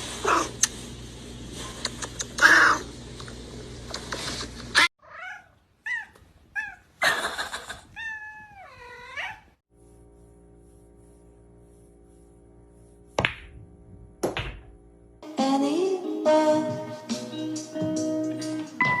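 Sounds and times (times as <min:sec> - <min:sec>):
cat meowing: 0:07.9 - 0:09.6.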